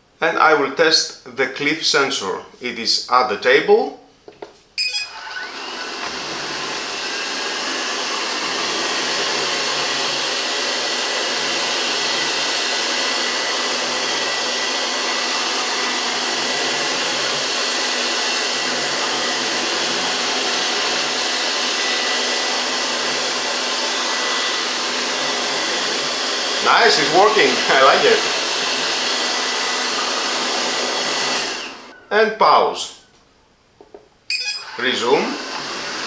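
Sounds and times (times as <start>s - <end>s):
robot vacuum cleaner running: 4.9s - 32.0s, 34.3s - 36.0s.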